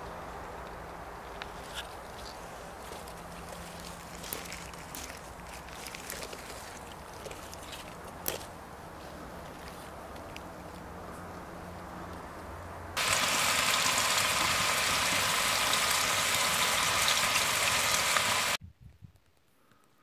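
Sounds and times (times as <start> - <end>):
mushrooms sizzling in a frying pan: 13.0 - 18.6.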